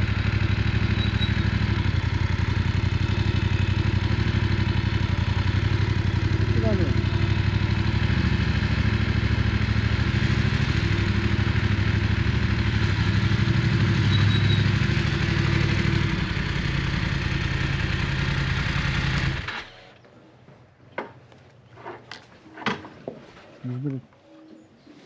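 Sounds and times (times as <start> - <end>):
motorcycle engine running: 0.0 - 19.7.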